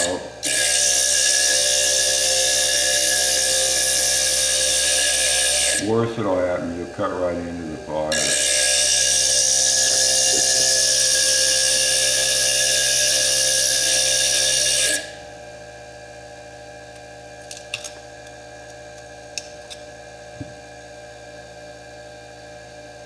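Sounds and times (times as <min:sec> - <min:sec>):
motor whine: 0:00.0 - 0:17.0
low steady hum: 0:05.1 - 0:12.3.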